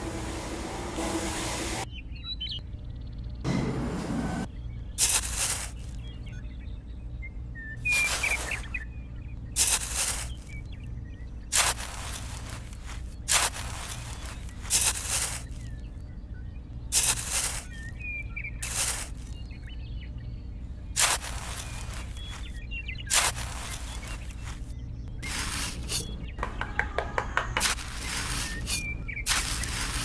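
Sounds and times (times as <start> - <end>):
faint birds chirping: 0.0 - 3.6, 4.3 - 30.0
hand trowel scraping sand: 5.0 - 6.0, 7.8 - 8.8, 9.6 - 10.6, 11.5 - 15.7, 16.9 - 17.9, 18.6 - 19.4, 21.0 - 26.2, 27.5 - 30.0.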